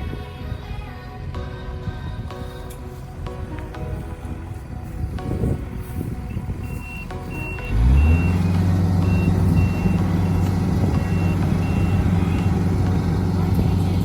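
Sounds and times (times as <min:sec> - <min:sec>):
diesel engine starting and running: 0:00.0 - 0:14.0
high-pitched warning beeps: 0:04.8 - 0:14.0.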